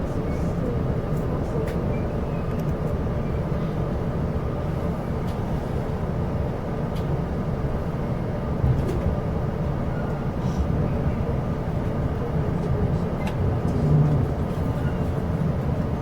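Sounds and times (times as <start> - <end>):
train rumble from inside carriage: 0.0 - 16.0.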